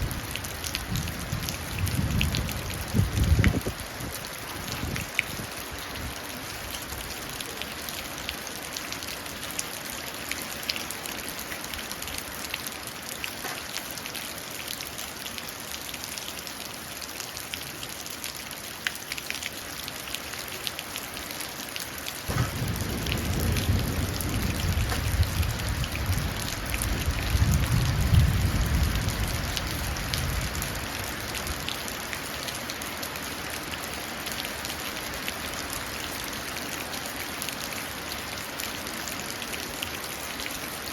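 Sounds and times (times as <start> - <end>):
low rumble of thunder: 0.0 - 3.8, 22.3 - 30.9
rain falling into puddles: 0.0 - 40.9.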